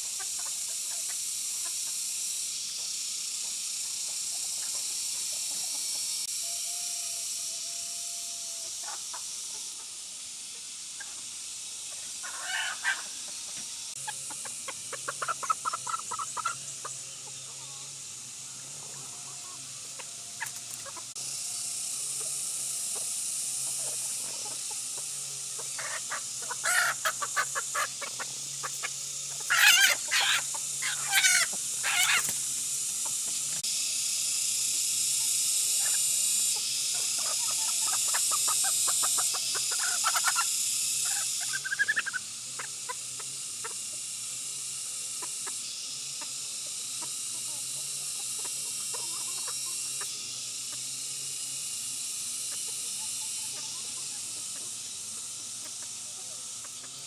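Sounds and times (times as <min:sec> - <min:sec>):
steady high hiss: 0:00.0 - 0:57.0
chickens clucking: 0:11.0 - 0:21.2, 0:22.1 - 0:33.5, 0:35.8 - 0:44.0, 0:46.2 - 0:50.1, 0:52.5 - 0:57.0.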